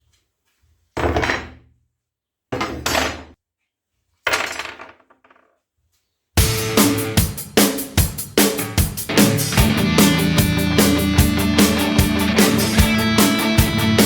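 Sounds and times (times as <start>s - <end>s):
drum kit music: 6.4s - 14.0s.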